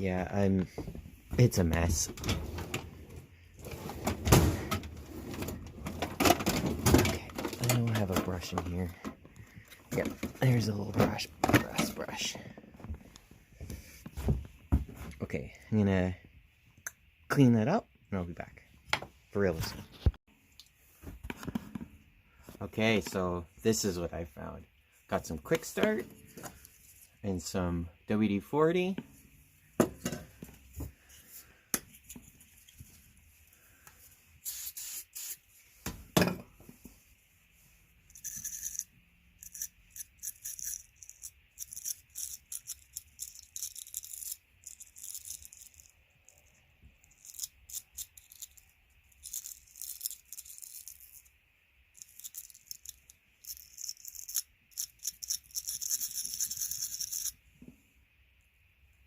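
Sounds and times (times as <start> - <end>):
aerosol spray hissing: 34.4 - 35.4.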